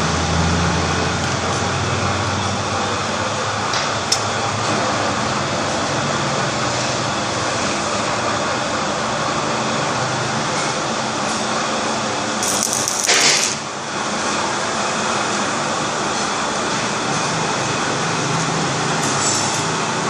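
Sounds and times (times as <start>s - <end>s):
brick cutting machine running: 0.0s - 20.0s
loud burst of hiss: 12.4s - 13.6s.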